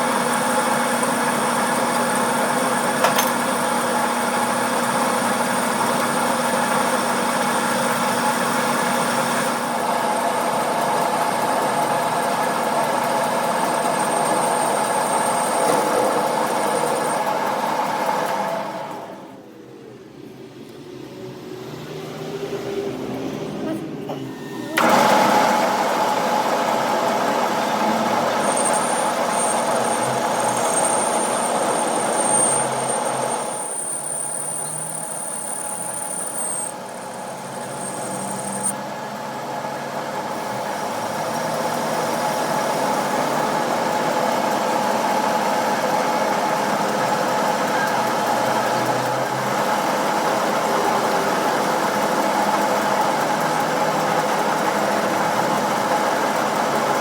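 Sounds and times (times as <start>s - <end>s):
workshop machinery running: 0.0s - 57.0s
thin high whine: 27.4s - 38.9s.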